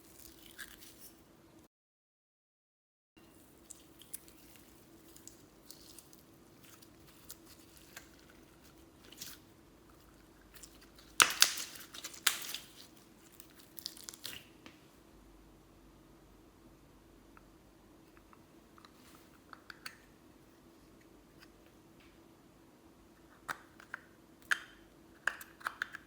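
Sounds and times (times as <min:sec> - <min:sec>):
slime squishing with clicking pops: 0:10.5 - 0:14.5.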